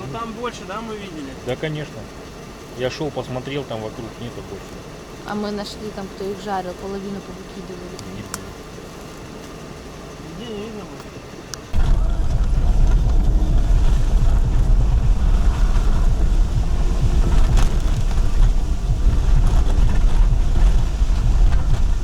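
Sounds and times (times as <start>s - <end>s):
wind buffeting microphone: 11.7s - 22.0s.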